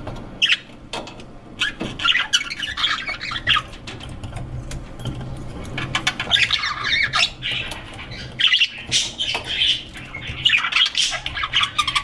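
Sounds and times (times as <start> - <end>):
budgerigars chattering and squawking: 0.4 - 0.7, 1.6 - 3.9, 5.8 - 12.0.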